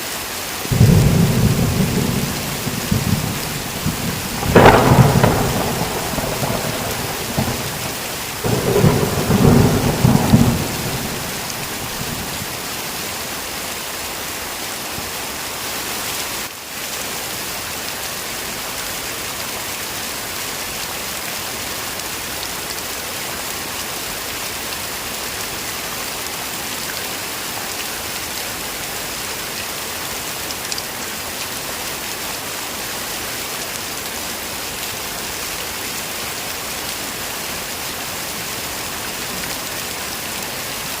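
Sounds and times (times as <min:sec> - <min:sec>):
heavy rain falling: 0:00.0 - 0:41.0
thunder rumbling: 0:00.7 - 0:12.6.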